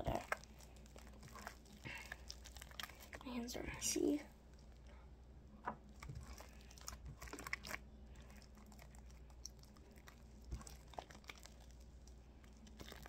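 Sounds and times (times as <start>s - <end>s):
slime squished by hand: 5.9s - 13.0s.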